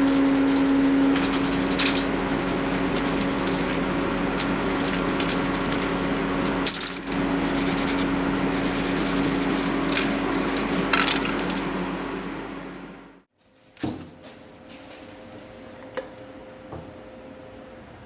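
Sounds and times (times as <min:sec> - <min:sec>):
power tool motor humming: 0:00.0 - 0:06.6
abrasive rubbing against metal part: 0:00.0 - 0:06.7, 0:07.4 - 0:11.4.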